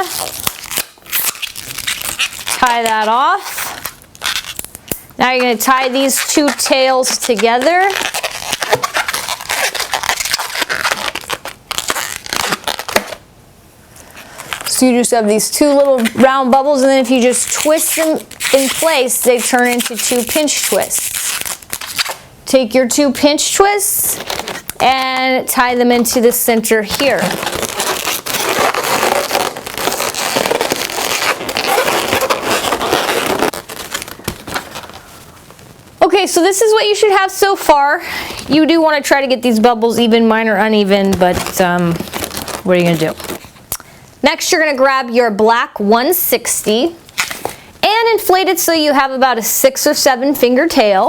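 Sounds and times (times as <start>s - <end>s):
rubber balloons rubbing and scraping: 5.2s - 13.0s, 23.4s - 36.0s.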